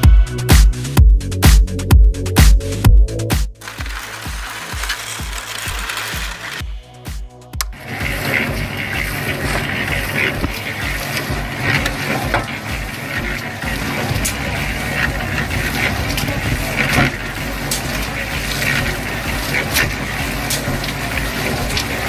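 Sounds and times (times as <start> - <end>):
rattling clicks: 3.6 - 6.6
scoop scraping cement powder: 3.6 - 6.7, 7.8 - 22.0
toy motor humming: 3.6 - 6.7.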